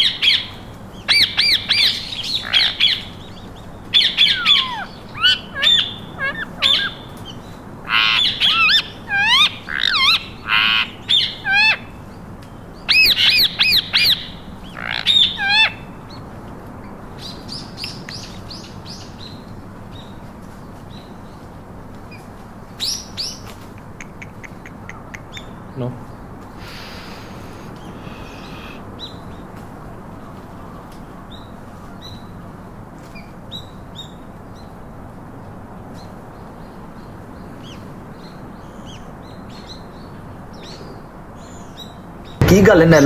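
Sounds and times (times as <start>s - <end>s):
faint bird chirps: 0.0s - 11.8s, 22.8s - 29.2s
parakeets squawking: 0.0s - 11.9s, 12.8s - 16.1s, 22.9s - 28.9s.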